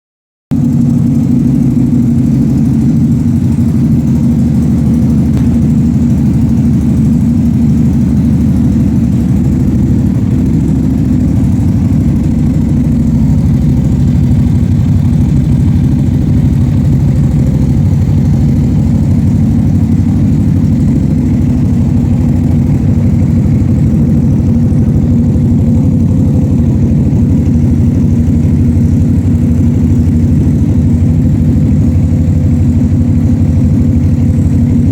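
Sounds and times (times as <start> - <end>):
motorcycle engine idling: 0.5 - 34.9.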